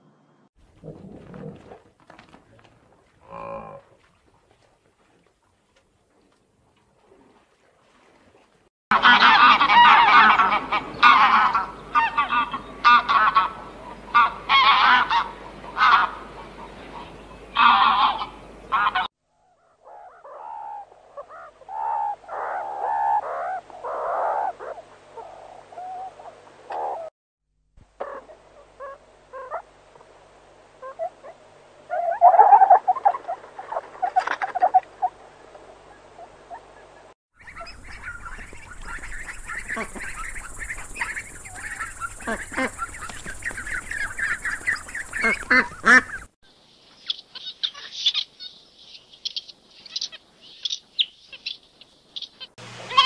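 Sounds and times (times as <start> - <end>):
goose honking: 8.9 - 19.1, 37.4 - 46.3
ducklings peeping: 9.0 - 24.0, 36.5 - 46.3, 46.9 - 53.0
lemurs calling: 37.4 - 46.3, 47.0 - 53.0.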